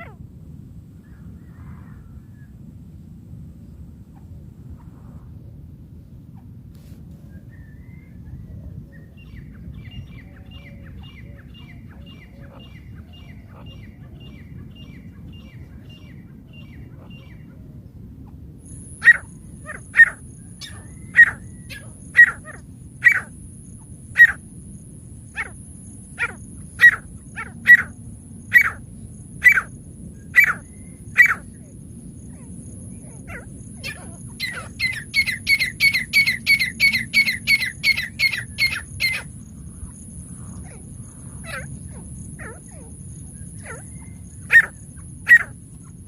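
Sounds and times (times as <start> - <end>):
francolin calling: 8.9 - 17.6, 18.3 - 46.0.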